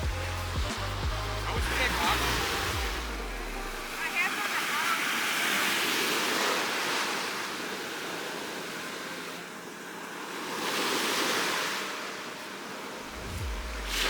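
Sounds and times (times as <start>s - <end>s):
ocean waves washing: 1.5s - 14.0s.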